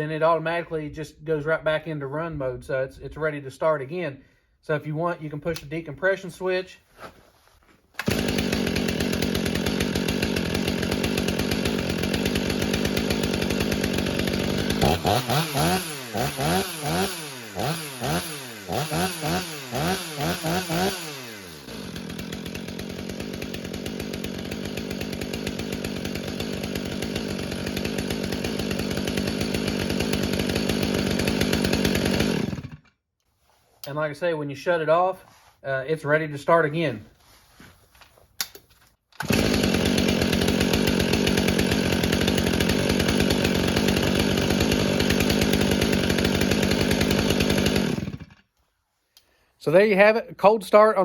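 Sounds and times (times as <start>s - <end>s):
chainsaw revving and idling: 8.0s - 33.0s, 39.2s - 48.5s.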